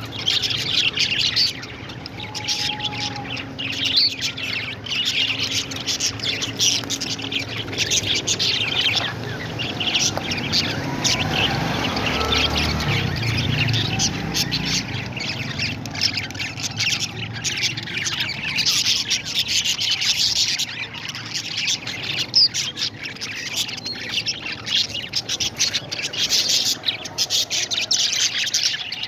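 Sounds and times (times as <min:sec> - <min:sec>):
parrot squawks: 0:00.0 - 0:06.2
parrots chirping and chattering: 0:00.0 - 0:29.0.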